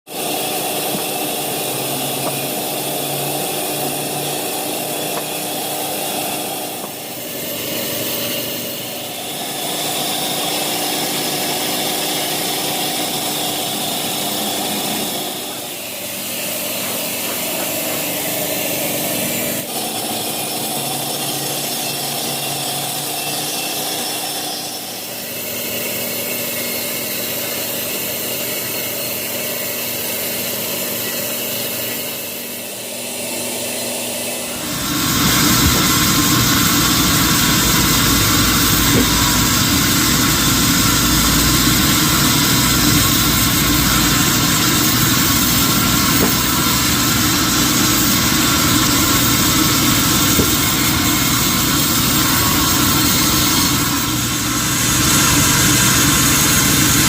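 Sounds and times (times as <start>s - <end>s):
sawmill saw cutting a log: 0.1s - 57.0s.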